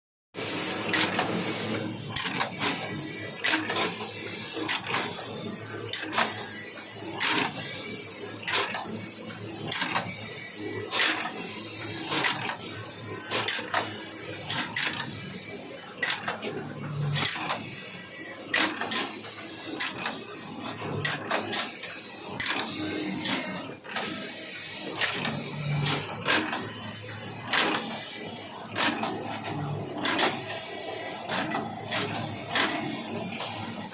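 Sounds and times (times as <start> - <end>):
sharp mechanical clacks: 17.1 - 17.7, 18.5 - 20.3, 25.0 - 26.8, 27.4 - 33.8.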